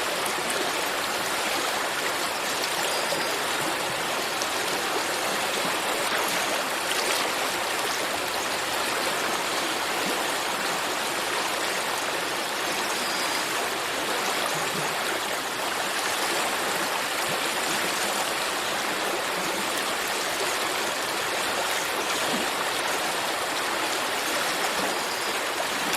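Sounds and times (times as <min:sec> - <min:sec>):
stream water flowing: 0:00.0 - 0:25.9.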